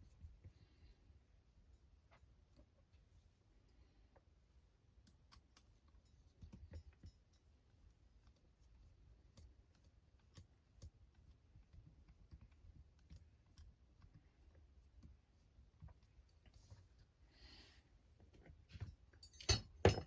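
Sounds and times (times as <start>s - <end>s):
small parts and tools clicking: 18.3s - 20.0s.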